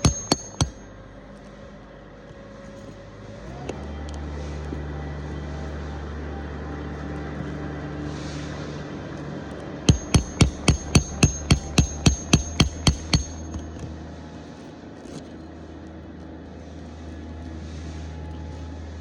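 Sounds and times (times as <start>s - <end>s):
hammer striking metal: 0.0s - 0.9s, 9.9s - 13.8s
low hum: 0.0s - 19.0s.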